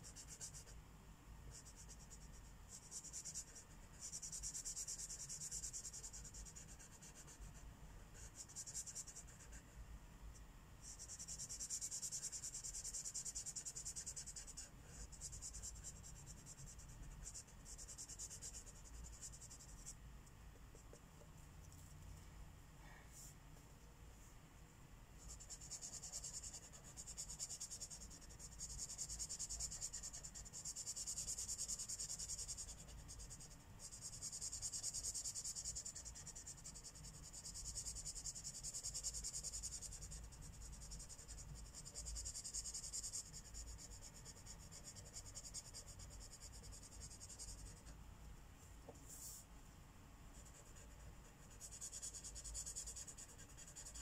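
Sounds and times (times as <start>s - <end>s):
marker rubbing on paper: 49.0s - 49.4s, 50.4s - 54.0s.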